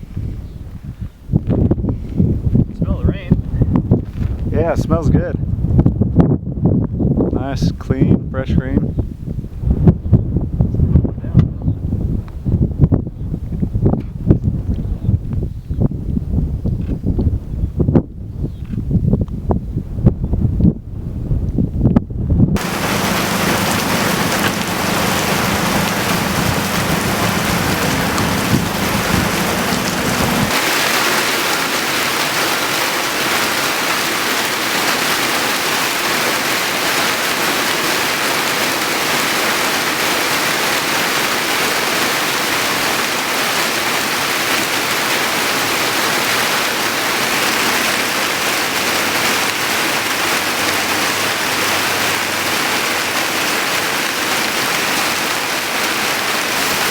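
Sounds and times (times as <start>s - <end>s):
low hum: 22.6s - 30.5s
heavy rain hissing: 22.6s - 56.9s.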